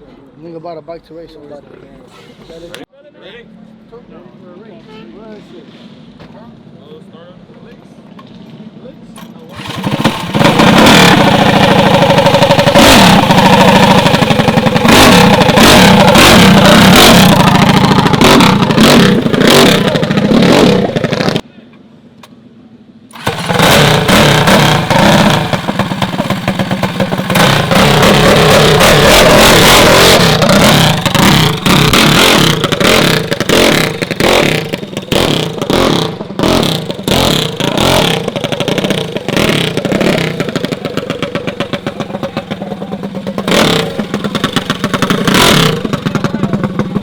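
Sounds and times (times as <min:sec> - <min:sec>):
minibike engine revving: 0:09.5 - 0:21.4, 0:23.1 - 0:47.0.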